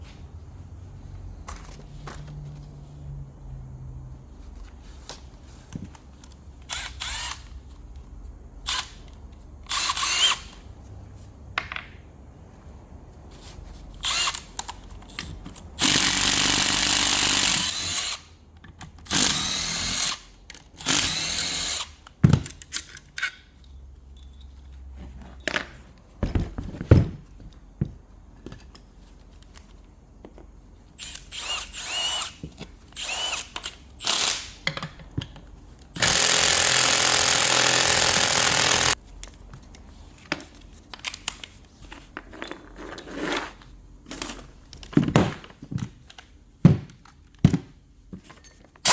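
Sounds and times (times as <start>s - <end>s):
metal parts clicking and knocking: 20.4s - 27.6s, 33.5s - 36.3s, 38.1s - 48.9s
handheld power tool running: 36.0s - 39.0s.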